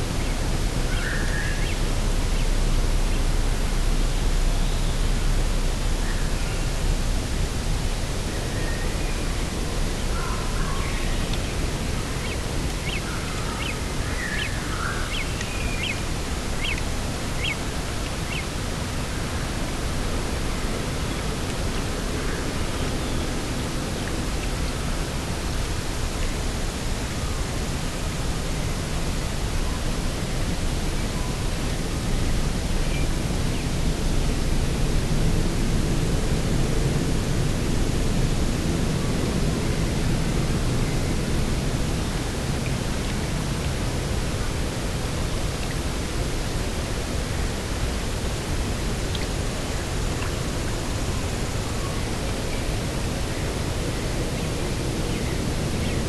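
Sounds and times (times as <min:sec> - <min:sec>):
rushing wind: 0:00.0 - 0:56.0.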